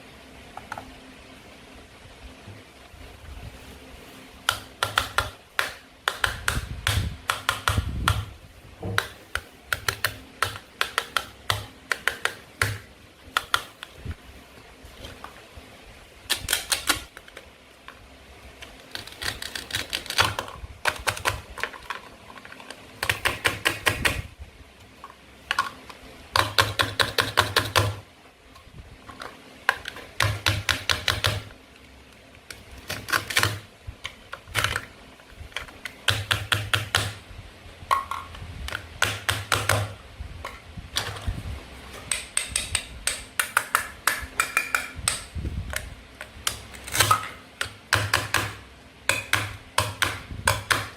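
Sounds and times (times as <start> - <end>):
toy knife cutting play food: 16.3 - 17.4, 18.9 - 24.2.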